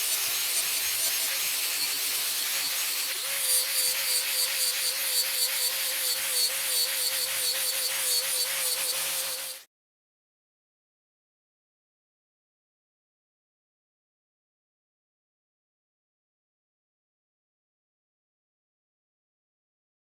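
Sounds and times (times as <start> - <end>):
angle grinder sanding wood: 0.0 - 9.6.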